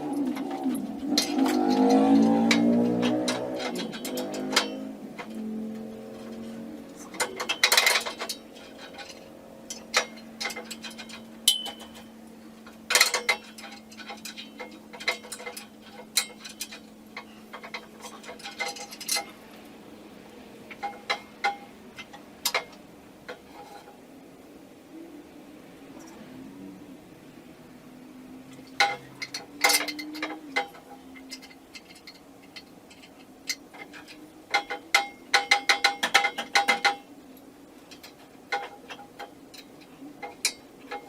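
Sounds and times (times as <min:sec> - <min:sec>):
metallic clinks and knocks: 0:00.2 - 0:19.4, 0:28.5 - 0:41.0.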